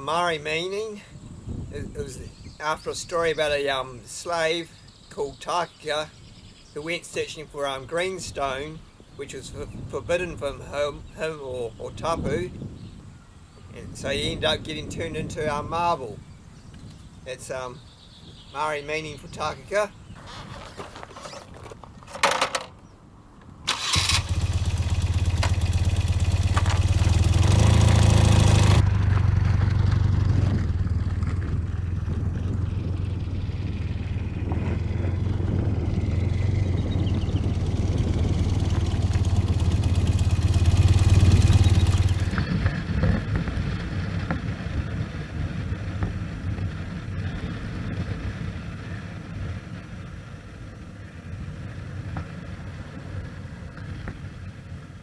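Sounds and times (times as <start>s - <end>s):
motorcycle engine running: 24.2s - 48.0s.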